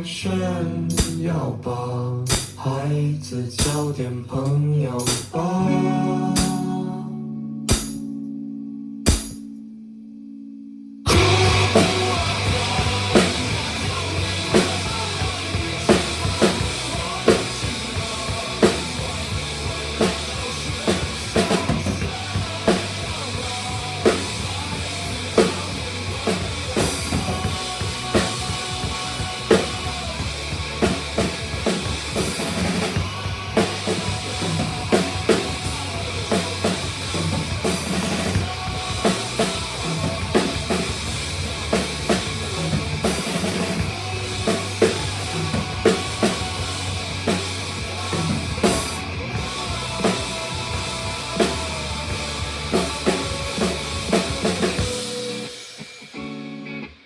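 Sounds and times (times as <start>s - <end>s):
recorded guitars and bass: 0.0s - 57.0s
drum kit rock beat: 1.0s - 1.3s, 2.3s - 2.6s, 3.6s - 5.5s, 6.4s - 6.7s, 7.7s - 8.1s, 9.1s - 9.4s, 11.1s - 56.5s
cymbal crashes: 7.7s - 8.0s, 9.1s - 9.4s.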